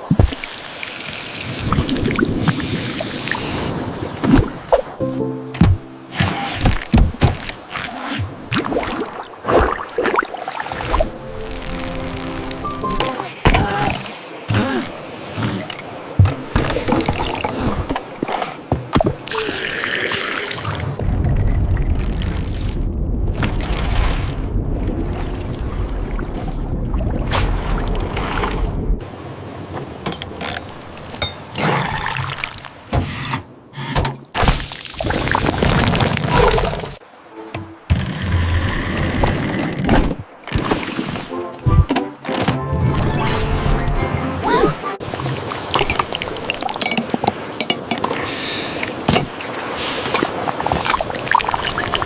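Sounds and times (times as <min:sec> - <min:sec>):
liquid pouring and splashing: 0:45.1 - 0:47.4, 0:49.5 - 0:52.0.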